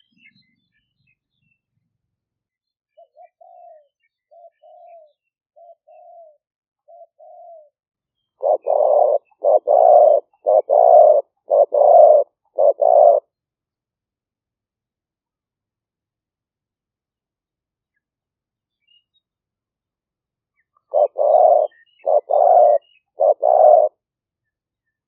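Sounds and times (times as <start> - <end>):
dove cooing: 3.0 - 7.8, 8.4 - 13.3, 20.9 - 24.0
loud rapid dove coos: 3.0 - 7.8, 8.4 - 13.3, 20.9 - 24.0.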